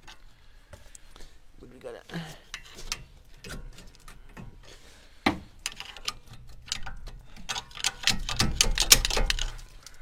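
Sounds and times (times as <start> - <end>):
hand tools clicking on metal: 5.6 - 10.0.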